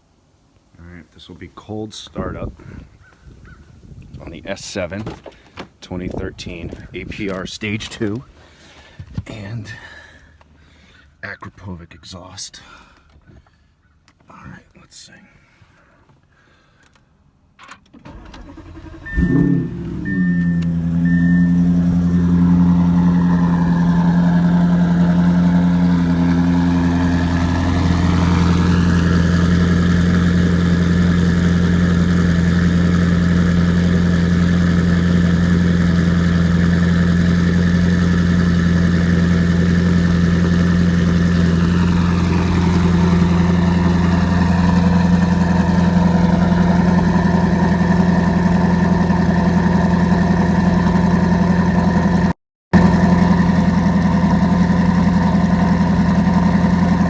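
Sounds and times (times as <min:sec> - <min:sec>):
car engine idling: 0:18.0 - 0:57.0.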